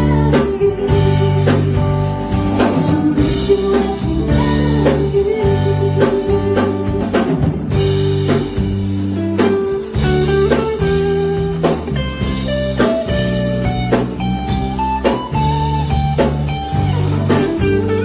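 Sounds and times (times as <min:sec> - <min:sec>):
drum-kit beat: 0:00.0 - 0:18.0
plucked guitar melody: 0:07.8 - 0:18.0.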